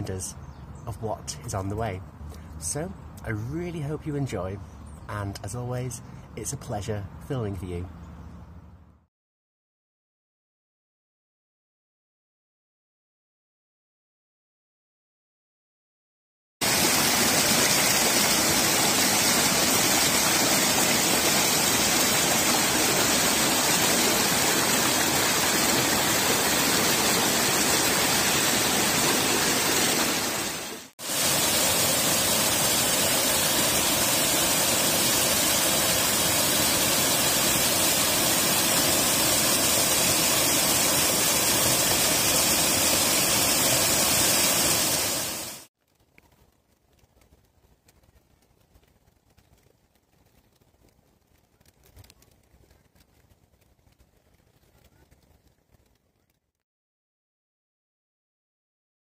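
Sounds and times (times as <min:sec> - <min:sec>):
water rushing: 0:16.6 - 0:45.7.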